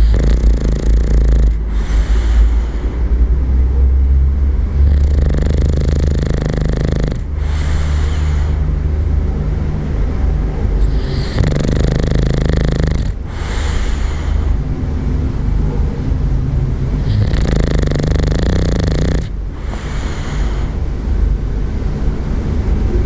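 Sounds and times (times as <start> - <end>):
dog snoring loudly: 0.0 - 21.7.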